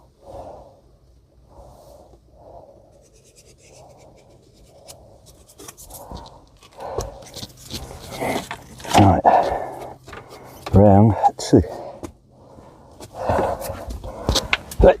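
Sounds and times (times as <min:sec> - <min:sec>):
pen scratching: 0:02.9 - 0:08.8.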